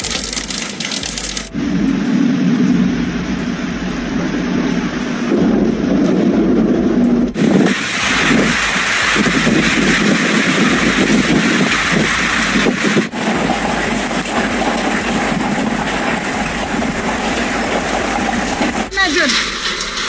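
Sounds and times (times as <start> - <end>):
heavy rain downpour: 0.0 - 20.0.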